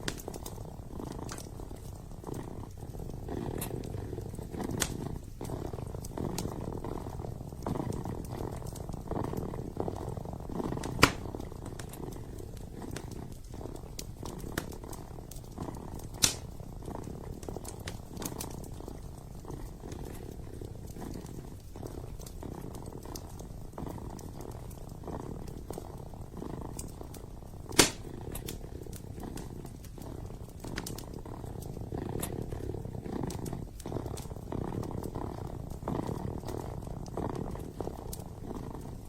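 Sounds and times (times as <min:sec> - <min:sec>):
kitten purring: 0:00.0 - 0:39.0
wood fire crackling: 0:00.0 - 0:39.0.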